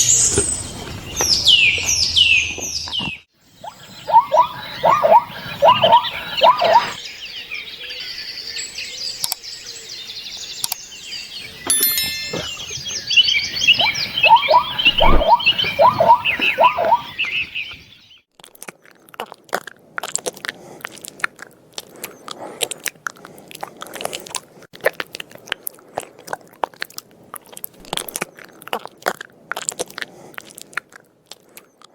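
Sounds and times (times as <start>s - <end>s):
birds chirping: 0.0s - 18.2s
animal chewing with crunching clicks: 18.3s - 31.9s.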